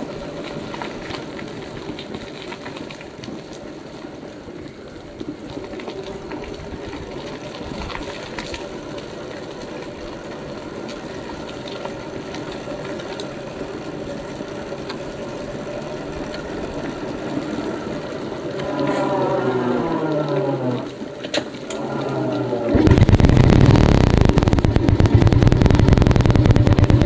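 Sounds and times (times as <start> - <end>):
motorcycle engine running: 22.7 - 27.0.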